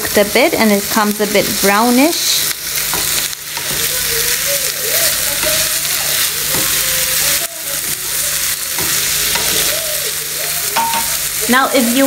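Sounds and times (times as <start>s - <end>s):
sausage and onion sizzling: 0.0s - 12.0s
wooden spatula stirring in pan: 2.4s - 12.0s.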